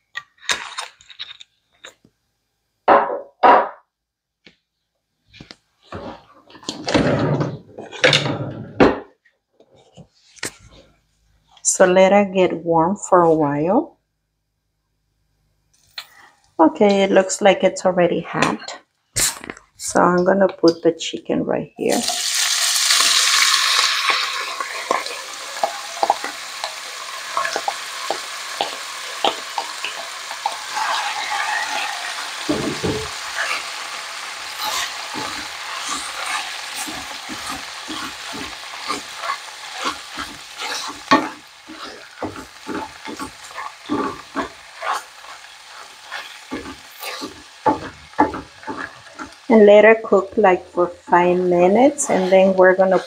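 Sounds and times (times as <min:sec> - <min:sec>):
wooden spoon scraping pan: 0:05.8 - 0:08.8, 0:23.7 - 0:53.0
chicken sizzling in hot oil: 0:21.9 - 0:53.0.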